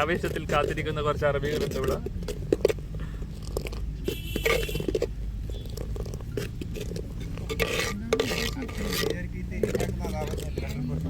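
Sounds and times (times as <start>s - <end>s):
spoon stirring porridge in pot: 5.7s - 10.7s.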